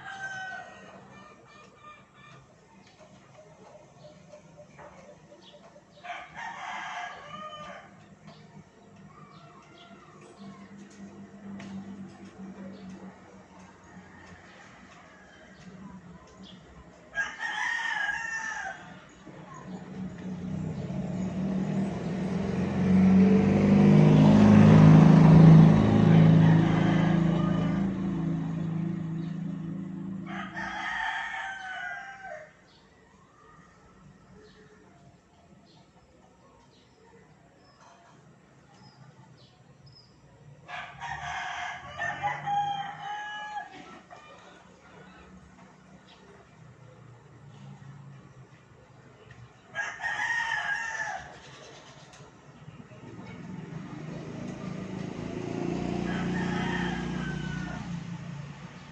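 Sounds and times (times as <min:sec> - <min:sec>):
rooster crowing: 0:00.0 - 0:01.3, 0:06.0 - 0:08.0, 0:17.1 - 0:19.0, 0:24.3 - 0:32.6, 0:40.7 - 0:44.0, 0:49.7 - 0:51.5, 0:54.9 - 0:58.3
engine running: 0:19.6 - 0:30.6, 0:52.9 - 0:58.9.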